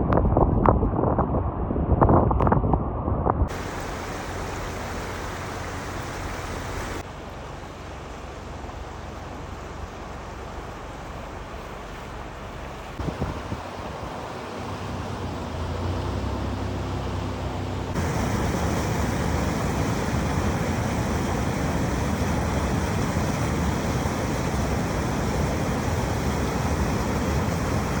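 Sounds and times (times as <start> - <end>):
rushing noise: 3.5 - 7.1, 13.0 - 28.0
vehicle engine humming: 3.5 - 28.0.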